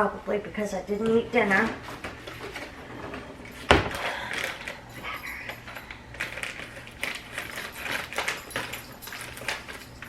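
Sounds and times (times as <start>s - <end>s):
handling and rustling: 1.0s - 10.0s.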